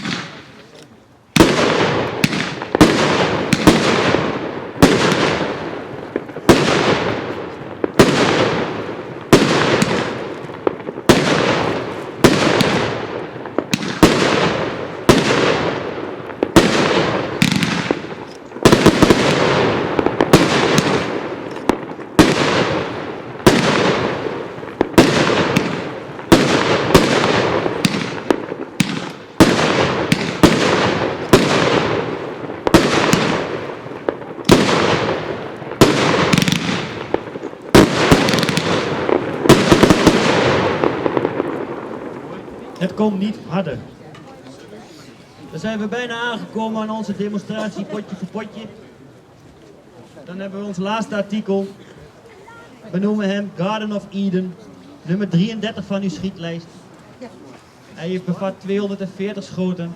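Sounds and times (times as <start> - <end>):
firework cake shots: 0.0 - 43.4.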